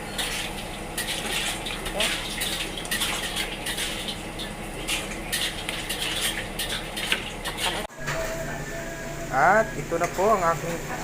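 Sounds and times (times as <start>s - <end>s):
metal utensil scraping a pot: 4.9s - 7.9s.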